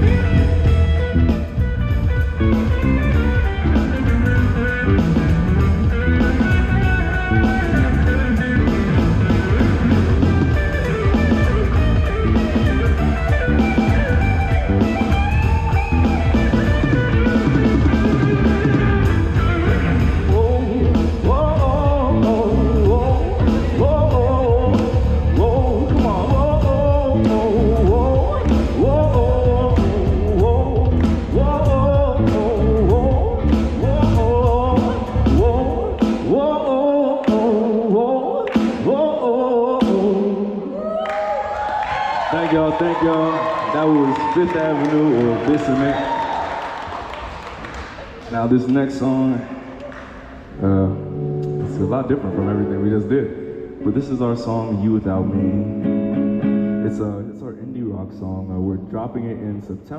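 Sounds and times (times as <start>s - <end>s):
live rock band playing: 0.0s - 36.5s, 49.7s - 57.0s
pitch-bending guitar line: 0.0s - 40.9s, 42.3s - 59.0s.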